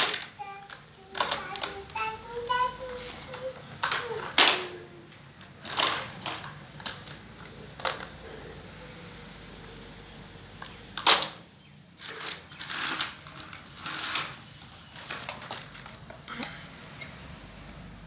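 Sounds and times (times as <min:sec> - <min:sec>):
scraping and rattling: 0:12.0 - 0:16.2.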